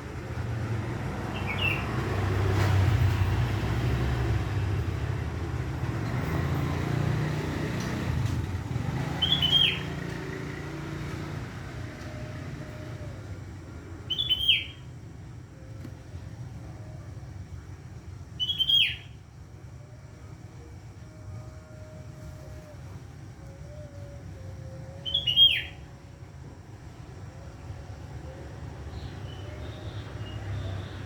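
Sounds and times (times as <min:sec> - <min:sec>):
passing vehicles rumble: 0:00.0 - 0:31.0
bird bright calls: 0:09.2 - 0:10.0, 0:18.4 - 0:19.2, 0:25.0 - 0:25.9.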